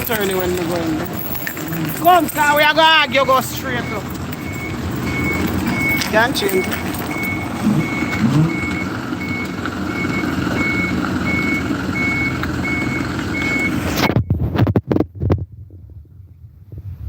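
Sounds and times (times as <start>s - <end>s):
engine and road noise: 0.0s - 17.0s
car electronic warning beep: 2.4s - 14.4s.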